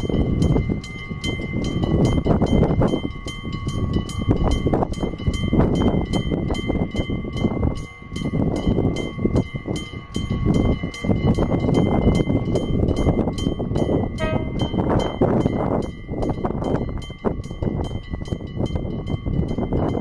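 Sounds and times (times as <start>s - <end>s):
wind buffeting microphone: 0.0s - 20.0s
level crossing bell ringing: 14.2s - 15.2s.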